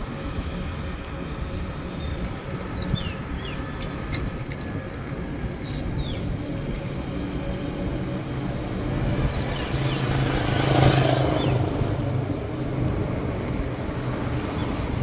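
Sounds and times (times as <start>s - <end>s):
vehicle engine passing: 5.7s - 15.0s.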